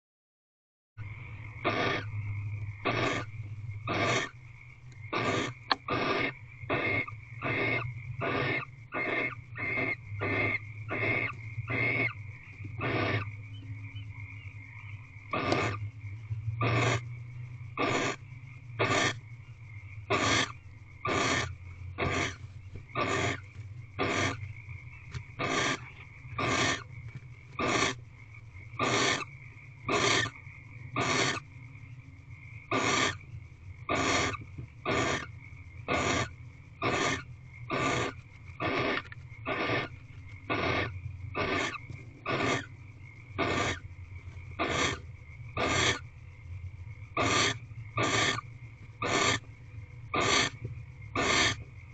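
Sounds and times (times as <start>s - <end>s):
low hum: 1.0s - 51.9s
owl hissing rasps: 1.2s - 4.4s, 5.0s - 15.9s, 16.6s - 17.1s, 17.7s - 19.3s, 20.0s - 26.9s, 27.5s - 28.0s, 28.7s - 31.5s, 32.6s - 43.9s, 44.5s - 46.2s, 47.1s - 49.5s, 50.1s - 51.7s.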